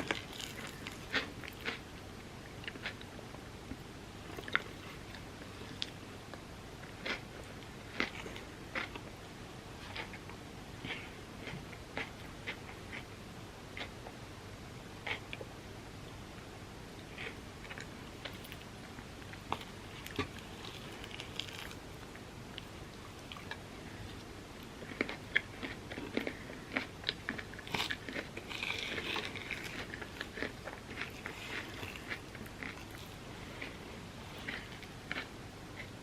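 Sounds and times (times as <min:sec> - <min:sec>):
close chewing and crunching: 0:00.0 - 0:03.2, 0:06.8 - 0:09.1, 0:09.8 - 0:13.1, 0:17.0 - 0:36.0.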